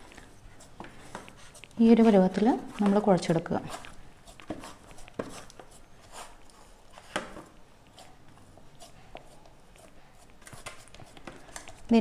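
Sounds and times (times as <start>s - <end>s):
hands kneading dough: 0.0s - 12.0s.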